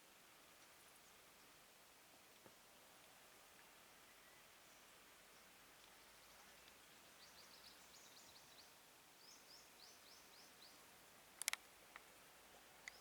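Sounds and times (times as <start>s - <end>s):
sharp clicks: 11.4s - 12.1s
soft ticks: 11.4s - 12.1s.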